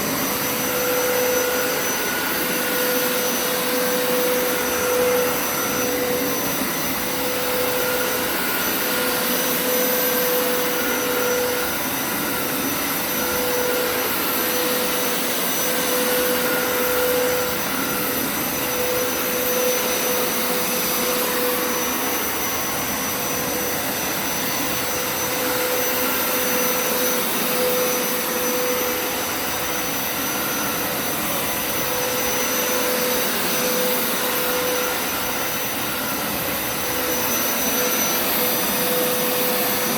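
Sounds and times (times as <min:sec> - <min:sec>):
carpet cleaner motor whine: 0:00.0 - 0:39.9.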